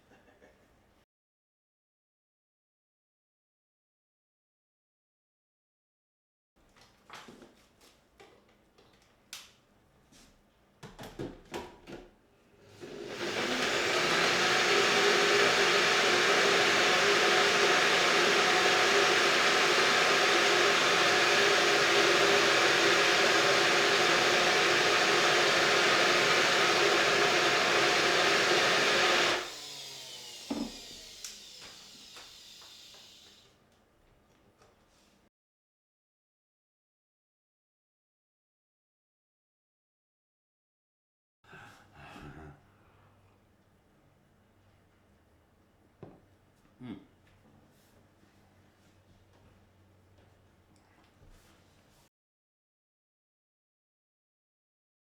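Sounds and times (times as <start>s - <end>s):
household appliance motor running: 12.7s - 33.5s.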